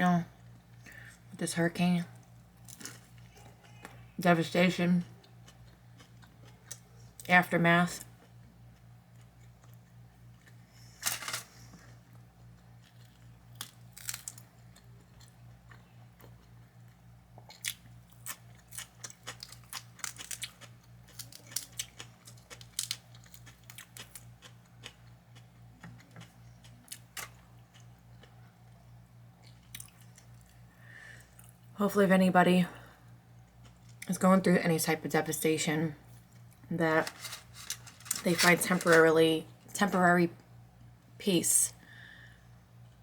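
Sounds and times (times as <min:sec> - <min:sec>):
steady low hum: 0:00.0 - 0:43.0
crunchy sandwich chewing: 0:02.2 - 0:04.2, 0:05.0 - 0:07.2, 0:08.2 - 0:31.6, 0:36.1 - 0:38.3.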